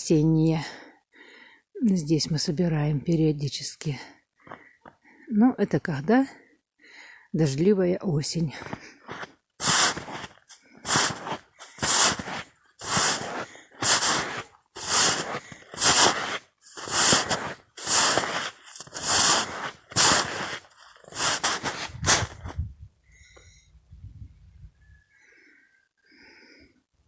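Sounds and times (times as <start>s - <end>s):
footsteps crunching in snow: 8.6s - 22.6s.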